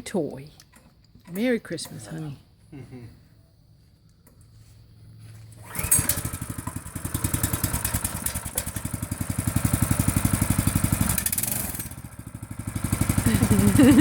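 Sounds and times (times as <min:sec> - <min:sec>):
minibike engine revving: 0:05.4 - 0:14.0.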